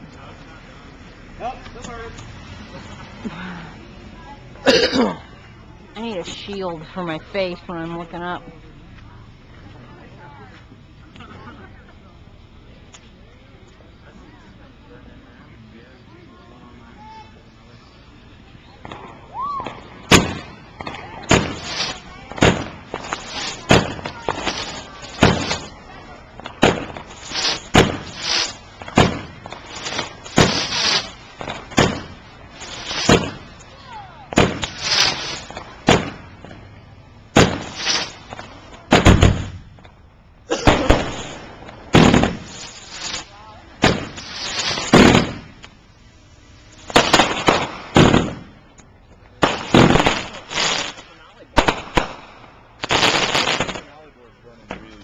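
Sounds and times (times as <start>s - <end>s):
fireworks crackling hiss: 0.0s - 55.0s
fireworks bangs: 17.0s - 55.0s.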